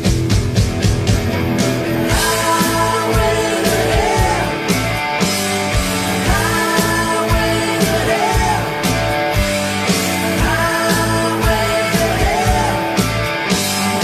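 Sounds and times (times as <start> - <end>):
drums: 0.0 - 14.0
electric guitar: 0.0 - 14.0
person singing sustained notes: 1.8 - 4.8.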